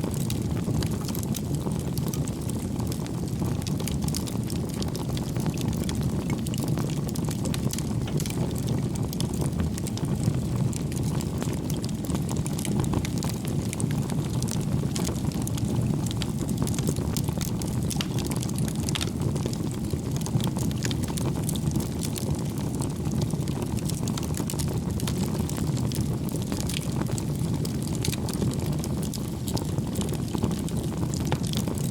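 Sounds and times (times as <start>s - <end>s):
burning logs crackling and popping: 0.0s - 31.9s
low rush of flames: 0.0s - 31.9s.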